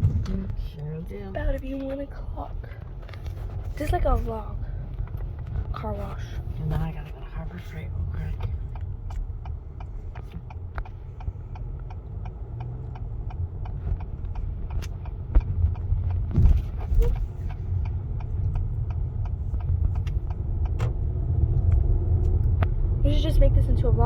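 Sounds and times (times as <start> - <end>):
car engine and road rumble: 0.0 - 24.0
even ticking: 6.2 - 22.6.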